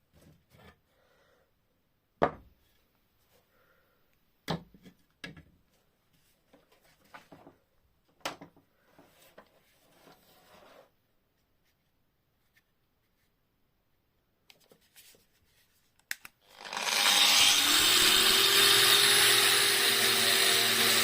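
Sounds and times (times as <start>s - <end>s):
light rubbing and shuffling: 5.7s - 7.7s, 14.6s - 16.0s.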